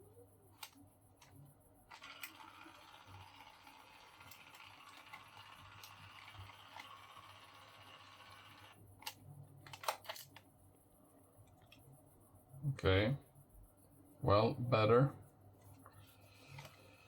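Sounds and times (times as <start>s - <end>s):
label maker motor whirring: 1.9s - 8.8s
sharp clicks: 9.0s - 10.5s.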